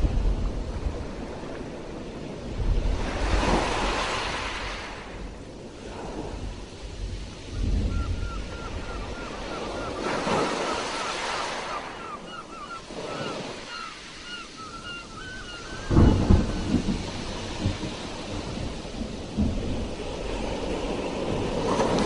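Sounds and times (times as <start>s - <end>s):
sea surf washing: 0.0s - 22.0s.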